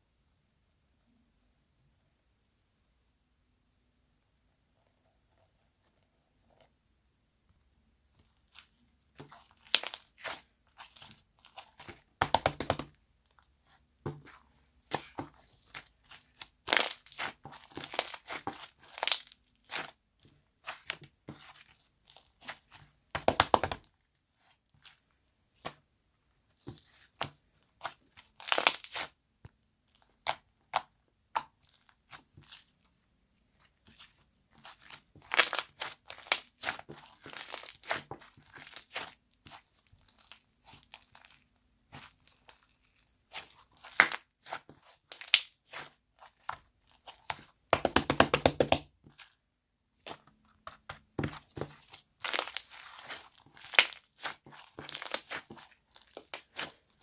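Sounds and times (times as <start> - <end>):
slime crackling and popping: 8.5 - 13.0, 14.8 - 20.0, 20.6 - 23.9, 27.8 - 29.2, 33.9 - 49.3, 50.0 - 57.0.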